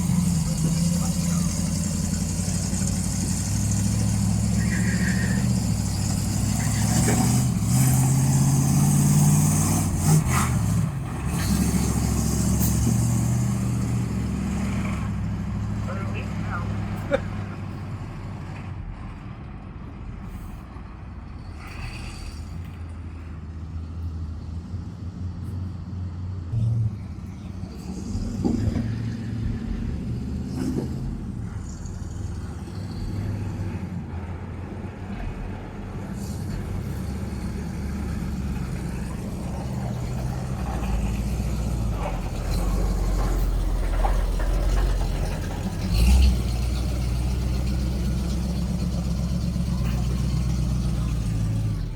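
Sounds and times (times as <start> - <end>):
truck engine droning: 0.0 - 51.9.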